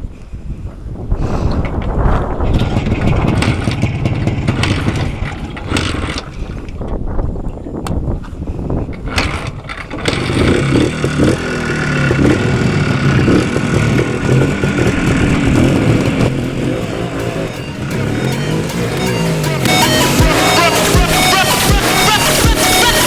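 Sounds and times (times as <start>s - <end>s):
wind noise: 0.0s - 11.4s
road noise: 0.0s - 23.0s
motorcycle engine running: 2.2s - 6.8s, 9.0s - 23.0s.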